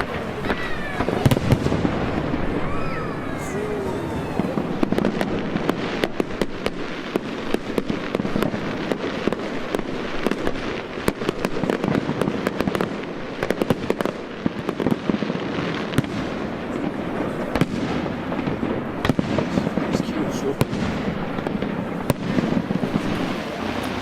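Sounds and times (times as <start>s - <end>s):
fireworks crackling and banging: 0.0s - 24.0s.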